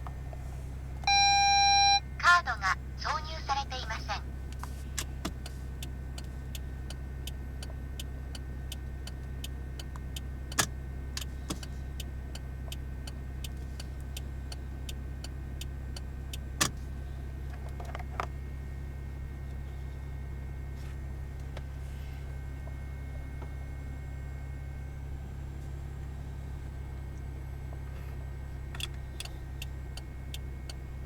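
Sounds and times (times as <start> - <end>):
car engine idling: 0.0 - 31.0
turn signal relay clicking: 4.5 - 16.8, 28.7 - 30.8.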